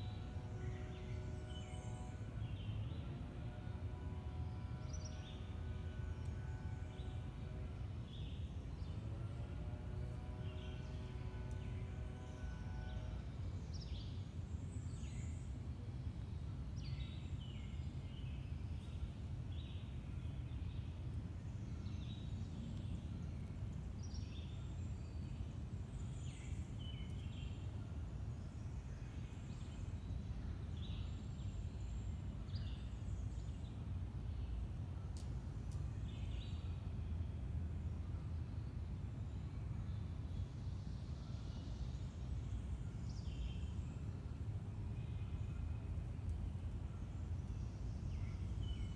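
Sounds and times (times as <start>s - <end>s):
multi-tone hum: 0.0s - 23.7s.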